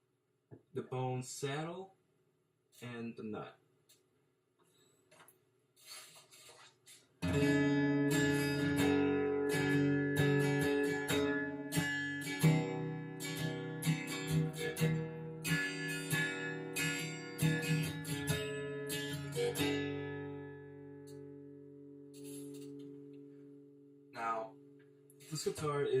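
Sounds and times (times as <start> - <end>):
acoustic guitar strumming chords: 7.2 - 26.0.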